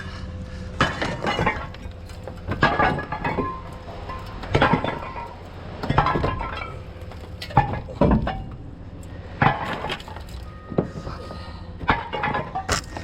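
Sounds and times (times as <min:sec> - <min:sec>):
glass breaking: 0:00.8 - 0:08.6, 0:11.8 - 0:13.0
crashing metal impacts: 0:00.8 - 0:13.0.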